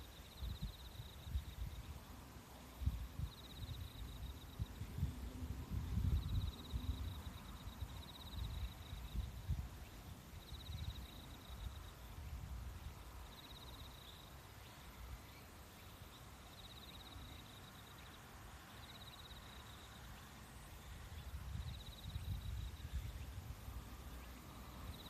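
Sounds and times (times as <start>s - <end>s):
insect chirping trills: 0.0s - 25.0s.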